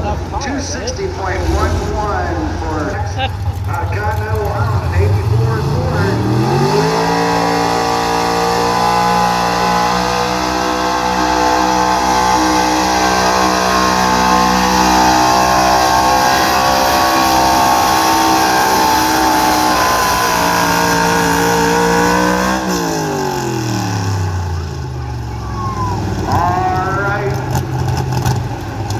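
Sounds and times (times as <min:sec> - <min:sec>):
truck engine at high revs: 0:00.0 - 0:28.9.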